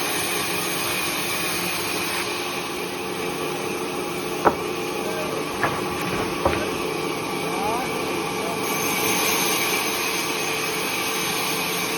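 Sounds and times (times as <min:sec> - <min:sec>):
sharp knocks: 0:04.4 - 0:07.1.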